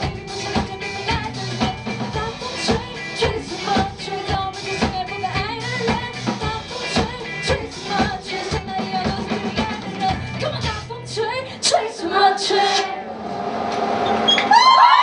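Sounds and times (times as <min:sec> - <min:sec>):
steady drum beat: 0:00.0 - 0:10.9
live pop band music: 0:00.0 - 0:13.0.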